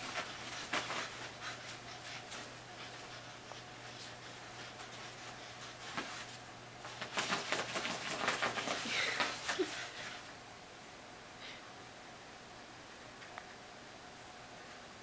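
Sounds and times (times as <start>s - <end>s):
dog paws scratching while digging: 0.0s - 10.1s.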